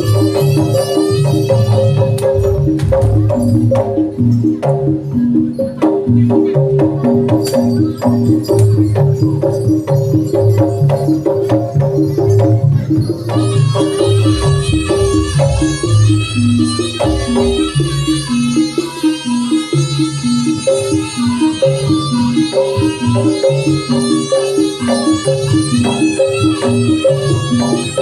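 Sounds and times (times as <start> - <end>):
low drum beats: 0.0 - 18.6.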